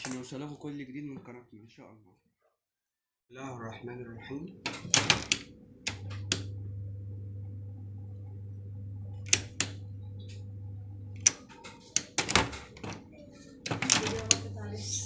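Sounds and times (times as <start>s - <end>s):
electric fan motor humming: 3.4s - 15.0s
switch clicks and knocks: 4.6s - 6.5s, 9.2s - 9.8s.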